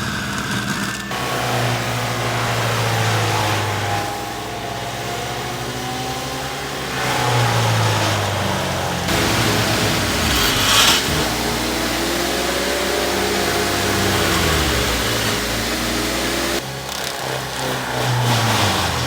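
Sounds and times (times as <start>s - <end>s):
tractor diesel engine running: 0.0s - 19.0s
hissing burst: 9.1s - 11.8s.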